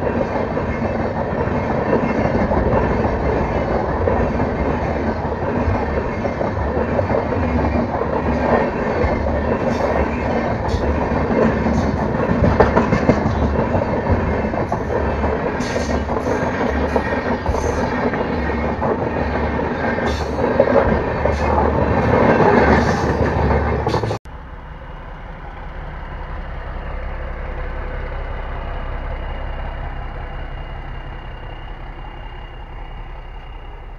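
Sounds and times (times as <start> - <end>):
passenger train rumbling past: 0.0 - 33.9
rail vehicle engine noise: 0.0 - 33.9.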